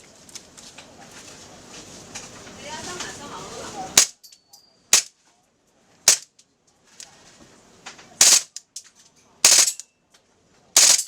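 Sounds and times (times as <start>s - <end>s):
airsoft pistol shots: 6.1s - 6.3s, 8.2s - 8.6s, 9.4s - 9.8s, 10.8s - 11.0s.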